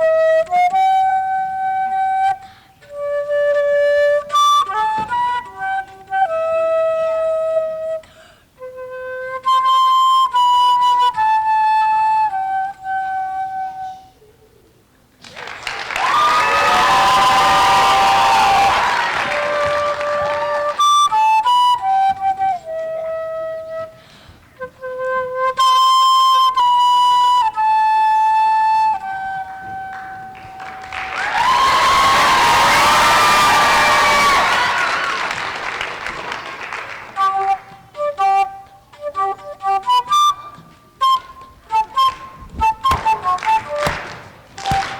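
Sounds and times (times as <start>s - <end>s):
solo flute melody: 0.0s - 14.7s, 15.6s - 44.9s
audience applause with cheers: 15.2s - 21.0s, 30.0s - 37.3s, 43.4s - 44.9s
slow solo instrument melody: 24.6s - 31.0s, 37.1s - 44.9s.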